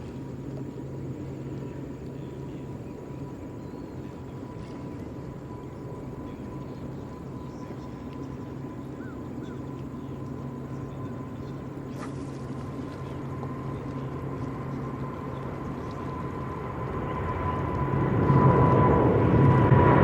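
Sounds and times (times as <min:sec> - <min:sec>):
distant jet engines rumbling: 0:00.0 - 0:20.0
faint bird chirps: 0:01.6 - 0:04.7, 0:05.7 - 0:11.7.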